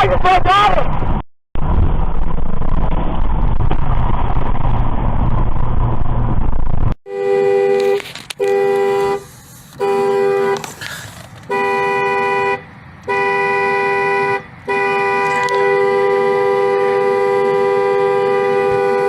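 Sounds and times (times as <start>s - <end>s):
car horn honking: 7.0s - 19.0s.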